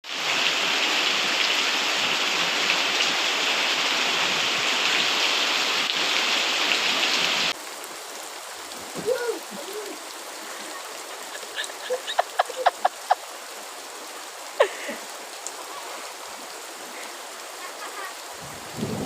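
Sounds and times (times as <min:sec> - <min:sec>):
heavy rain hissing: 0:00.0 - 0:19.0.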